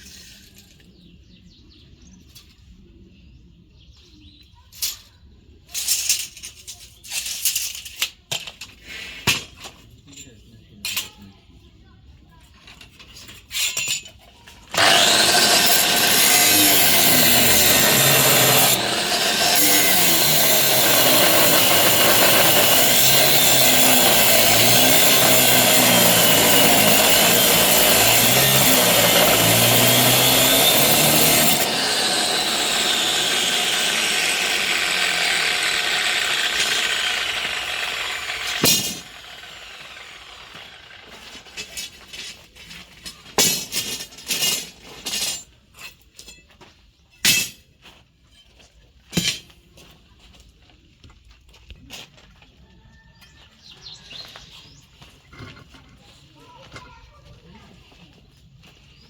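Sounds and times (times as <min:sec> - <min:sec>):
grinder disc grinding metal: 0:14.7 - 0:41.8.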